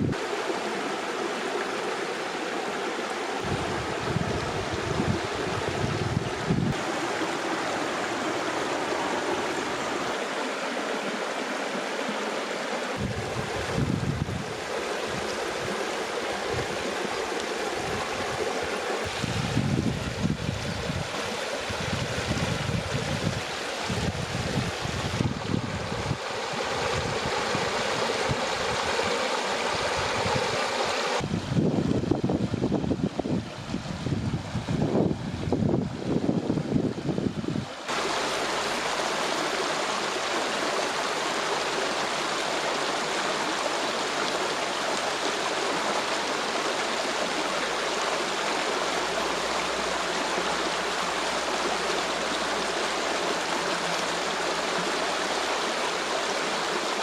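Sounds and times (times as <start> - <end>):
stream water rushing: 0.0 - 57.0
wind rumble on microphone: 3.4 - 6.9, 13.0 - 17.0, 17.8 - 37.9.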